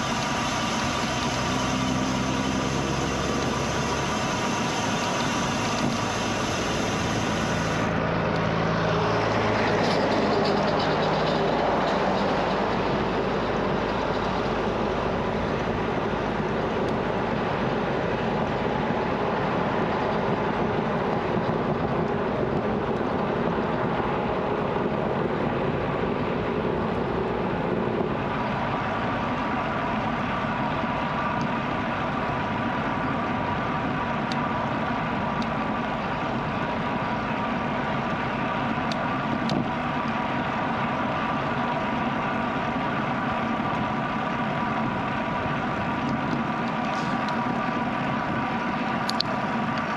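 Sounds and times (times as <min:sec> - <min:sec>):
bicycle tyres rolling on road: 0:00.0 - 0:49.9
wind rushing over microphone: 0:00.0 - 0:49.9.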